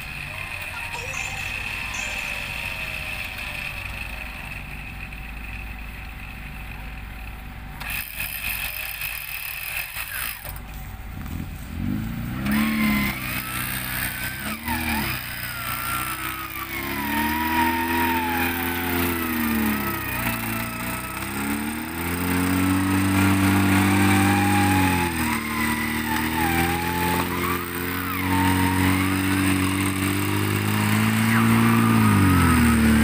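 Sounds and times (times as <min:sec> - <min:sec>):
high whine: 0:00.0 - 0:06.4
off-road truck engine revving: 0:00.0 - 0:33.0.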